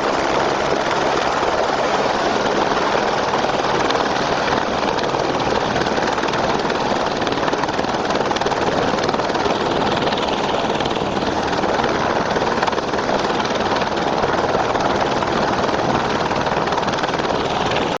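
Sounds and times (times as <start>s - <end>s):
helicopter rotor and engine: 0.0s - 18.0s.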